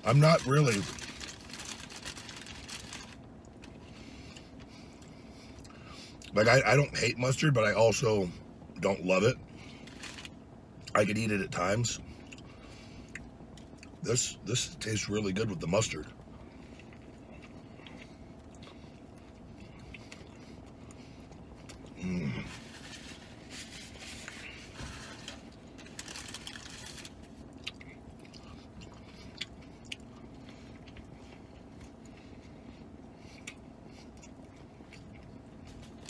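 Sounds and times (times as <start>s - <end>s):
chewing and soft crunching: 12.0s - 36.0s.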